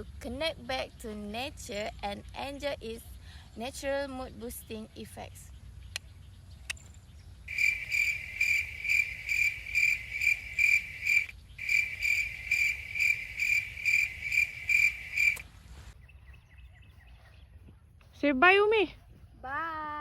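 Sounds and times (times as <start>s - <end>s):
cricket chirping: 7.5s - 15.4s.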